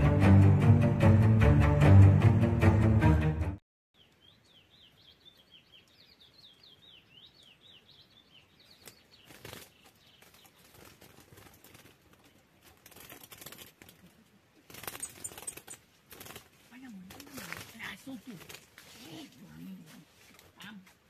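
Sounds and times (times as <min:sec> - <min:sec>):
bird wing flutter and rustling: 0:08.7 - 0:21.0.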